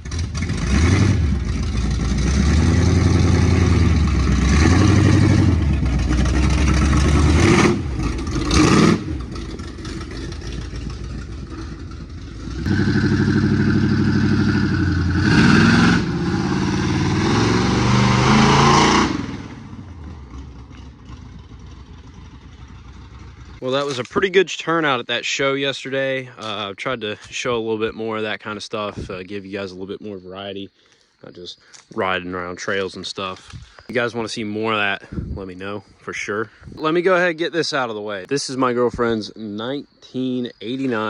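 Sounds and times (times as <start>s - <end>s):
truck engines accelerating hard: 0.0s - 23.6s.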